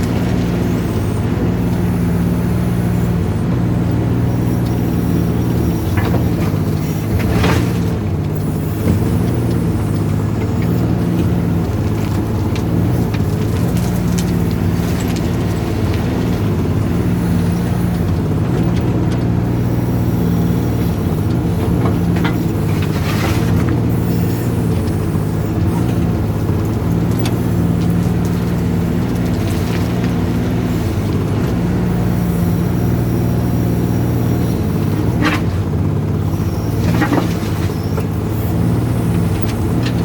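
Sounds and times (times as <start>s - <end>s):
excavator diesel engine running: 0.0s - 40.0s
short scrapes and knocks: 5.4s - 19.4s, 36.5s - 40.0s.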